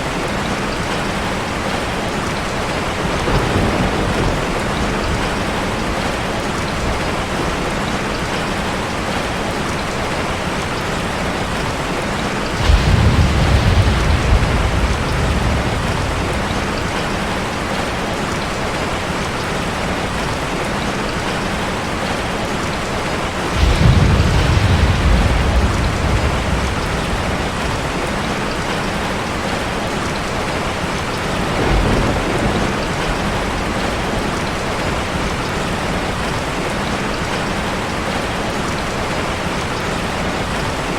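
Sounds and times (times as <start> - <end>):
heavy rain falling: 0.0 - 40.9
thunder rolling: 2.7 - 7.4, 12.4 - 18.5, 23.4 - 37.1.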